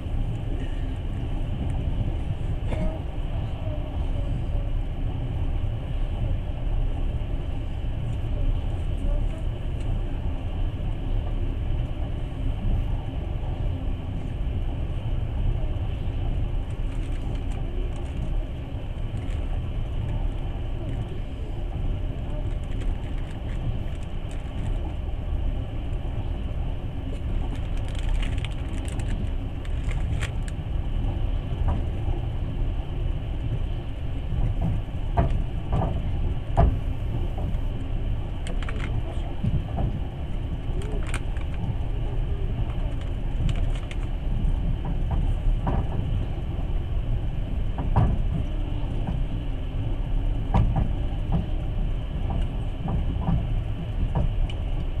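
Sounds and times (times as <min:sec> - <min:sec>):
train carriage rumbling: 0:00.0 - 0:55.0.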